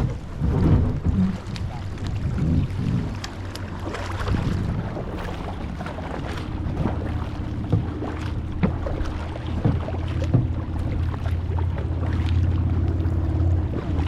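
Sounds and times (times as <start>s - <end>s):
paddle strokes splashing in water: 0.0s - 14.0s
wind buffeting microphone: 0.0s - 14.0s
sharp knocks: 8.6s - 11.0s.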